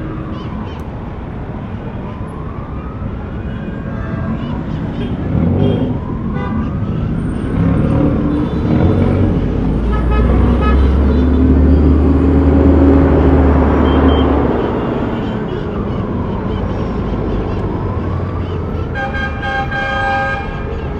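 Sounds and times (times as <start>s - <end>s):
road noise: 0.0s - 20.9s
vehicle engine passing: 4.4s - 19.7s.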